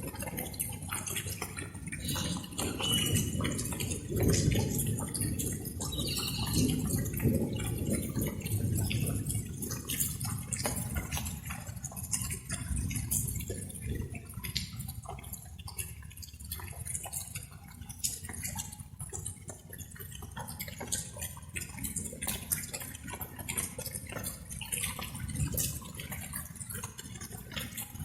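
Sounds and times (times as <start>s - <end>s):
light rain: 0.0s - 28.0s
water drops dripping: 0.0s - 28.0s.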